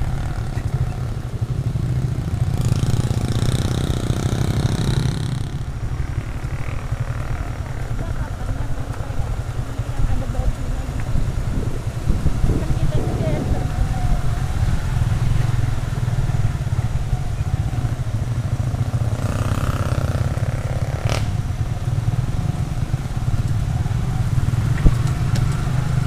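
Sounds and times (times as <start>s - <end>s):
small motorcycle engine rumble: 0.0s - 26.0s.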